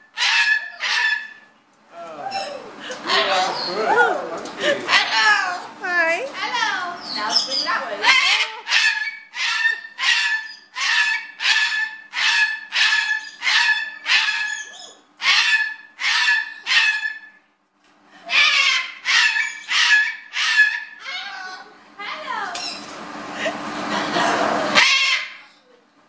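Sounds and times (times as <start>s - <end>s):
cockatoo harsh barking calls: 0.0s - 1.5s, 2.3s - 5.6s, 6.5s - 17.4s, 18.2s - 21.7s, 23.9s - 25.6s.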